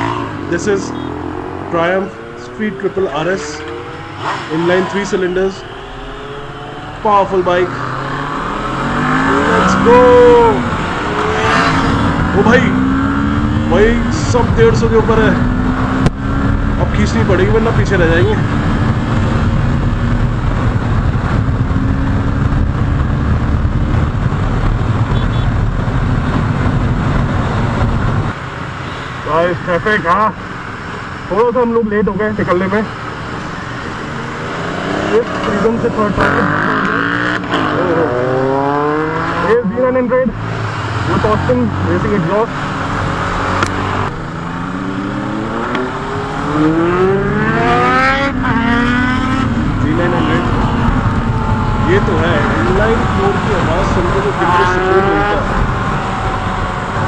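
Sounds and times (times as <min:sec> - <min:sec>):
motorcycle engine running hard: 0:00.0 - 0:31.6, 0:32.2 - 0:57.0
wind rush on microphone: 0:07.9 - 0:28.4, 0:42.6 - 0:57.0.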